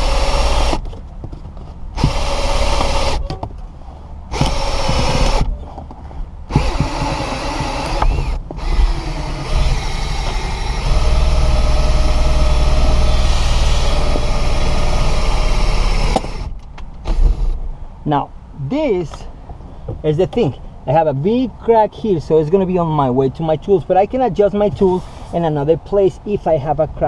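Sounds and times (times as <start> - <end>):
cordless drill running: 0.0 - 0.8, 2.0 - 3.2, 4.3 - 5.4, 6.5 - 16.5.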